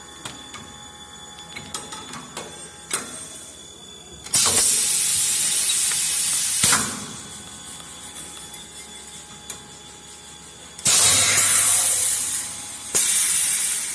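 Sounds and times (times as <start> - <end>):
loud hiss of gas: 4.4 - 7.0, 10.9 - 13.9.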